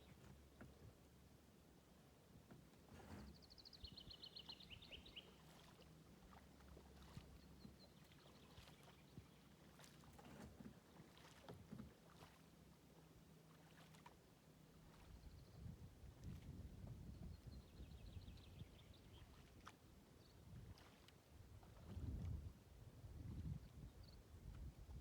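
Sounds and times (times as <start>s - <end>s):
kayak paddle splashing: 4.4s - 15.2s, 19.2s - 22.0s.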